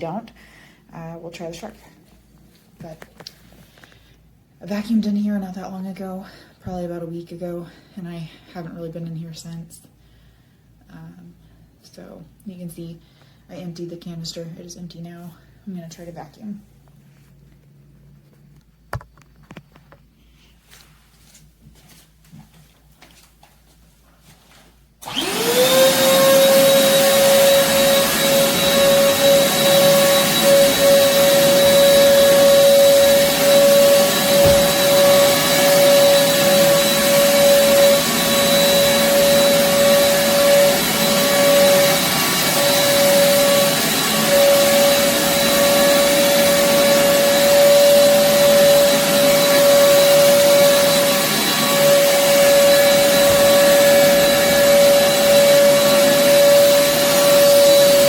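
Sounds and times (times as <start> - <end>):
vacuum cleaner motor whining: 25.0 - 58.0.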